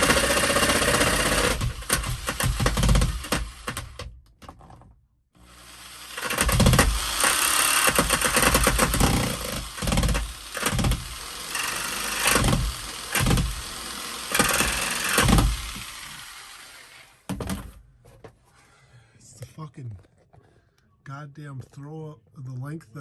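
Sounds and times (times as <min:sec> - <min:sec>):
jigsaw motor in short bursts: 0:00.0 - 0:03.8, 0:05.4 - 0:17.1.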